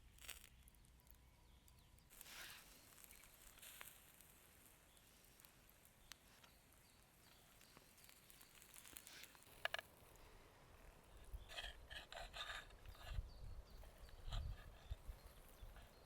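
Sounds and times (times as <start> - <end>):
faint small ticks: 5.4 - 6.6.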